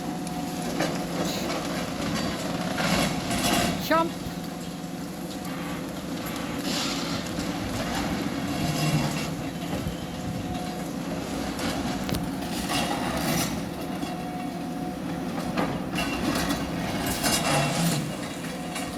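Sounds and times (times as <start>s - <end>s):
excavator diesel engine running: 0.0s - 18.9s.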